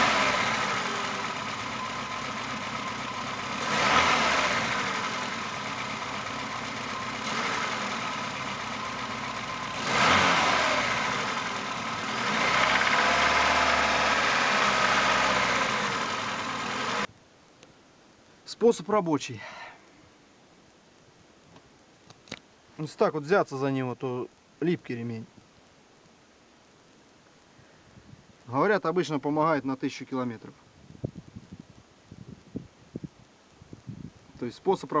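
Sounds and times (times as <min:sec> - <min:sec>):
car engine revving: 0:00.0 - 0:17.1.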